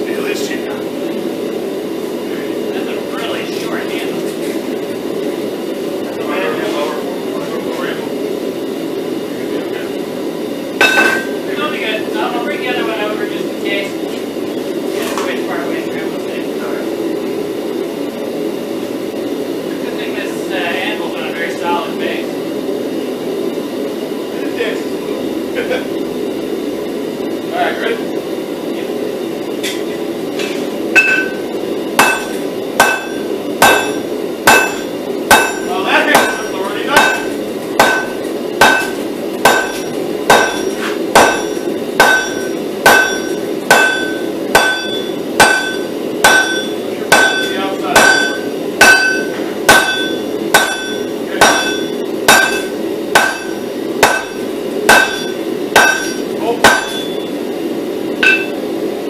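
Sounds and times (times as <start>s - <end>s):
hammer striking steel on anvil: 10.8s - 11.4s, 31.0s - 57.3s, 58.2s - 58.6s.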